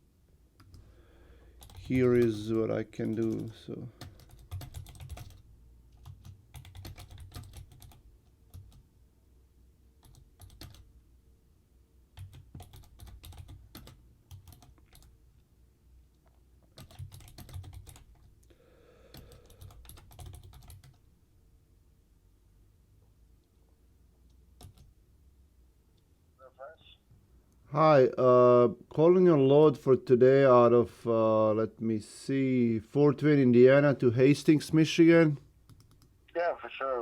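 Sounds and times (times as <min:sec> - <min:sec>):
computer keyboard typing: 0:00.6 - 0:00.8, 0:01.5 - 0:08.8, 0:10.0 - 0:10.9, 0:12.2 - 0:15.1, 0:16.6 - 0:18.3, 0:19.1 - 0:21.0, 0:24.6 - 0:24.9, 0:35.6 - 0:36.1.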